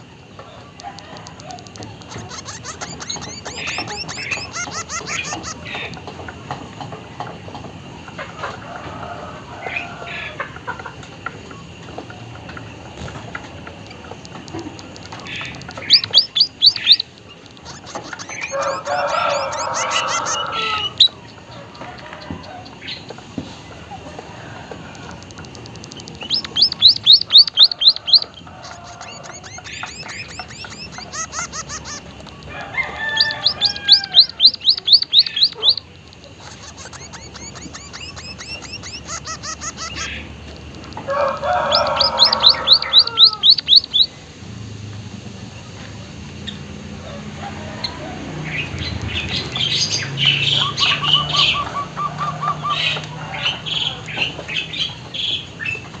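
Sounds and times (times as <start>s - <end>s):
bird twittering: 0.0s - 6.9s, 12.4s - 24.0s, 24.8s - 44.2s, 48.4s - 56.0s
bird singing loud rising notes: 0.7s - 6.0s, 12.9s - 21.8s, 25.1s - 44.3s, 46.3s - 56.0s.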